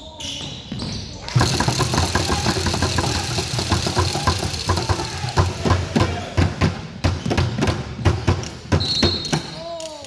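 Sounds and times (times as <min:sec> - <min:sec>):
shoe squeaks: 0:00.0 - 0:01.7, 0:08.8 - 0:09.7.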